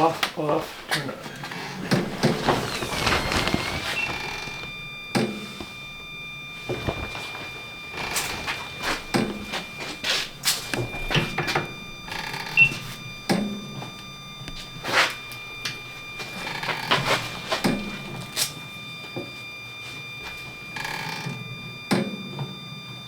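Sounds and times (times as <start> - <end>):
blade sharpener whining: 1.8 - 5.0.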